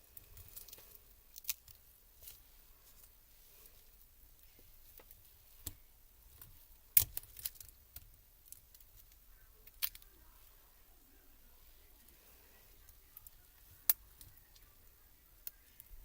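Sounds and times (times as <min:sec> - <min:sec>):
plastic parts clicking and snapping: 0:00.2 - 0:01.8, 0:05.0 - 0:10.1.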